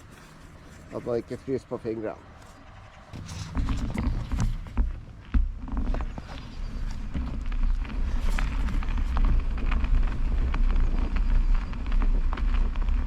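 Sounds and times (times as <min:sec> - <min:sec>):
bicycle rolling on snow: 0:00.0 - 0:13.0
wind rumbling on microphone: 0:02.6 - 0:13.0.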